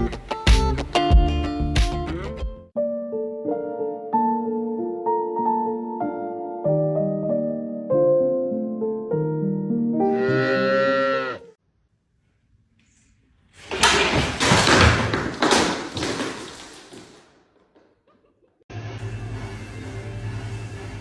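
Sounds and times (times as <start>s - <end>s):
loud clattering: 13.6s - 17.9s.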